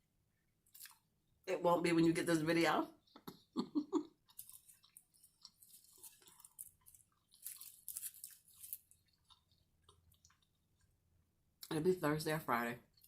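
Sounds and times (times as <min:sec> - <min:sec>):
person chewing crunchy food: 0:00.6 - 0:01.2, 0:03.0 - 0:11.3.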